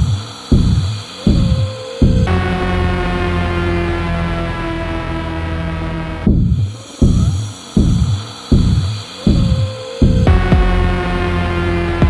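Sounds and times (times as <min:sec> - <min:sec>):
deep booming electronic pulses: 0:00.0 - 0:12.0
faint high drone: 0:00.0 - 0:12.0.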